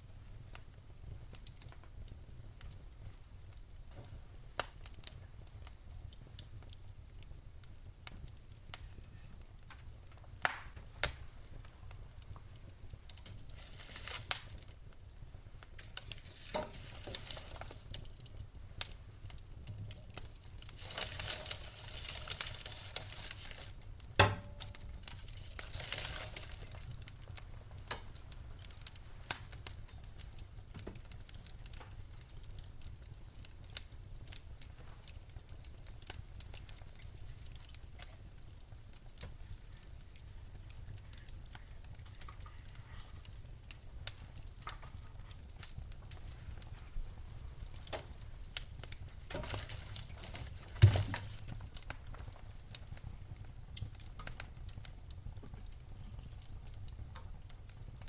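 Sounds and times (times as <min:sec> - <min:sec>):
fire crackles and pops: 0:00.0 - 0:58.0
wood fire rumbling: 0:00.0 - 0:58.0
fire hissing: 0:08.4 - 0:30.7.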